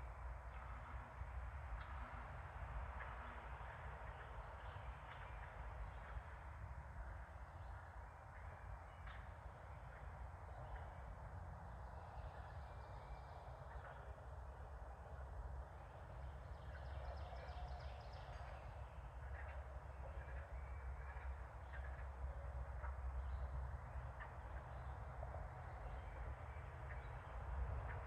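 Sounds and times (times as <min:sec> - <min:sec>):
outdoor wildlife ambience: 0:00.0 - 0:28.0.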